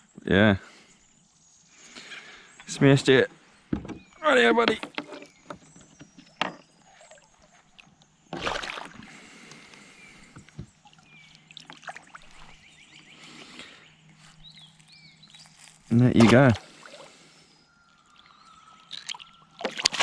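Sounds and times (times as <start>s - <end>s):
water sloshing around kayak: 4.0s - 20.0s.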